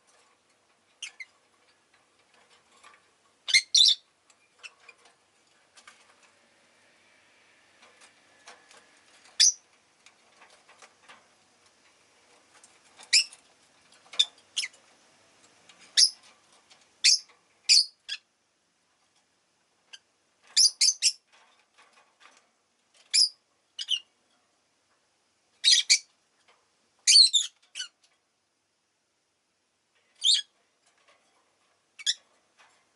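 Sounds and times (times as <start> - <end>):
lovebirds chirping: 3.4 - 4.9, 9.4 - 9.6, 13.0 - 13.4, 15.9 - 16.2, 17.0 - 18.3, 30.2 - 30.5.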